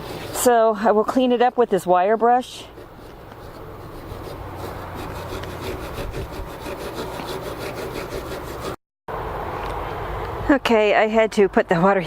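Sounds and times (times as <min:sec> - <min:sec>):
wire brush scrubbing metal: 0:00.0 - 0:08.8.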